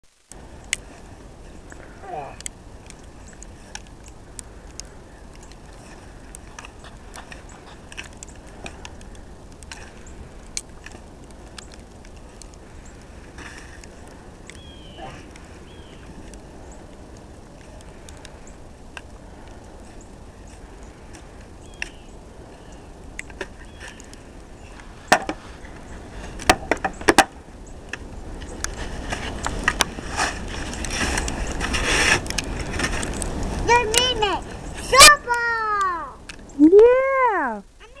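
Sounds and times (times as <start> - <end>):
snow shovel scraping: 30.0 - 33.0.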